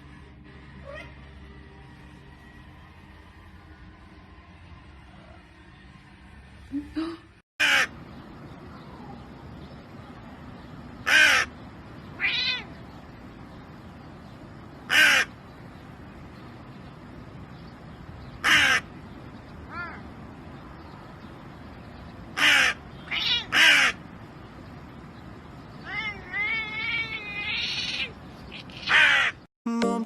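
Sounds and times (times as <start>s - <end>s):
crow cawing: 7.6s - 7.9s, 11.0s - 11.5s, 14.9s - 15.3s, 18.4s - 18.9s, 22.4s - 24.0s, 28.8s - 29.4s
quieter tonal crow calls: 7.6s - 8.0s, 11.0s - 11.6s, 14.8s - 15.4s, 18.4s - 18.9s, 22.3s - 24.1s, 25.8s - 29.5s.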